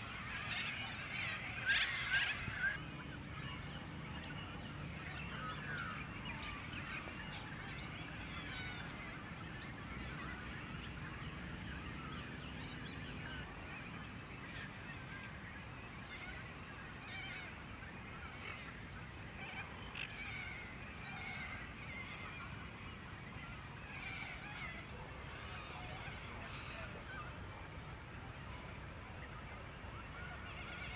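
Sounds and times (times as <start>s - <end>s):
birds calling: 0.0s - 13.9s.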